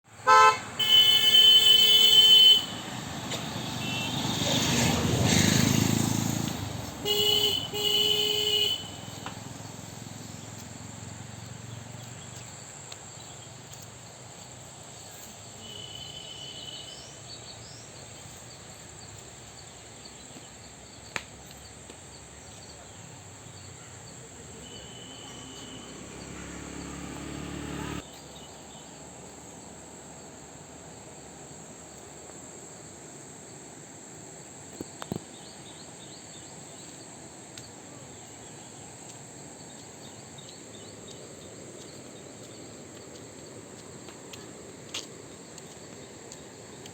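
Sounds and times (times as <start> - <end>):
insects droning: 0.1 - 46.9
vehicle horn honking: 0.2 - 2.9, 3.7 - 4.3, 7.0 - 9.2, 15.6 - 17.0, 24.6 - 28.0
vehicle passing: 2.3 - 12.4, 24.5 - 28.0.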